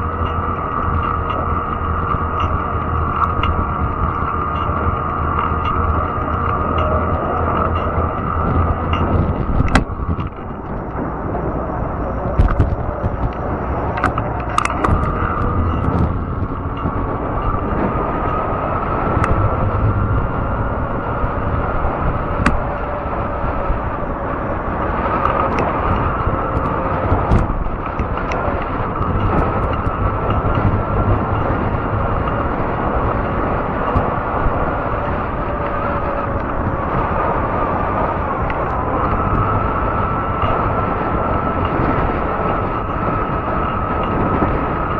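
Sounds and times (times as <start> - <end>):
tyres on trail: 0.0 - 44.9
wind noise: 0.0 - 44.9
sharp clicks: 12.3 - 17.7.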